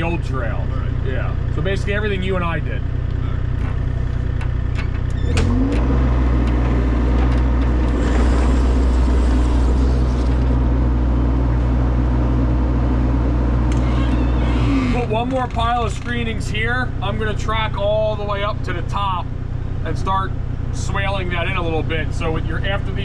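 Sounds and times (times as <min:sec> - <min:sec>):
heavy equipment engine revving: 0:00.0 - 0:18.6.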